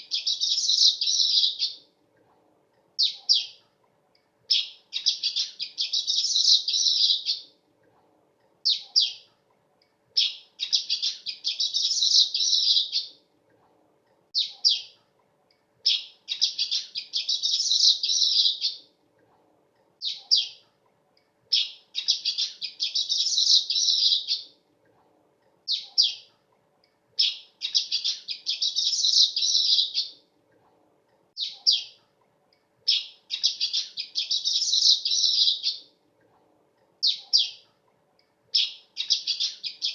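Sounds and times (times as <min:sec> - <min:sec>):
bird chirping and chattering: 0:00.0 - 0:01.8, 0:03.0 - 0:03.6, 0:04.5 - 0:07.5, 0:08.6 - 0:09.3, 0:10.2 - 0:13.2, 0:14.4 - 0:15.0, 0:15.8 - 0:18.8, 0:20.0 - 0:20.6, 0:21.5 - 0:24.5, 0:25.7 - 0:26.3, 0:27.2 - 0:30.2, 0:31.4 - 0:32.0, 0:32.9 - 0:35.9, 0:37.0 - 0:37.7, 0:38.5 - 0:39.9.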